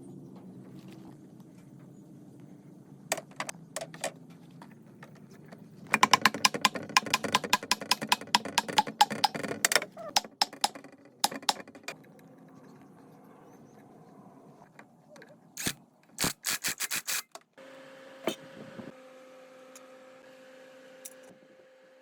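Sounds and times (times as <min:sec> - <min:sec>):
quick sharp clicks and taps: 0:05.9 - 0:11.9.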